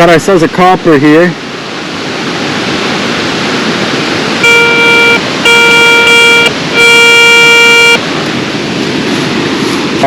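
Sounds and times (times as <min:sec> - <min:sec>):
rushing water: 0:00.0 - 0:10.0
metal detector long beeps: 0:04.4 - 0:08.0.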